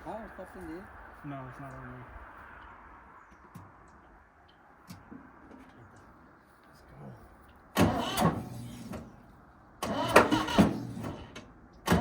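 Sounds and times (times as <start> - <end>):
engine cranked by starter: 7.8 - 9.2, 9.8 - 12.0.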